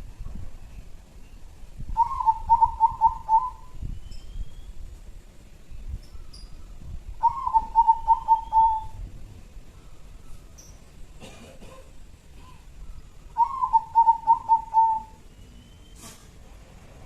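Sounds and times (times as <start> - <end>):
dove cooing: 2.0 - 3.7, 7.2 - 9.0, 13.3 - 15.2.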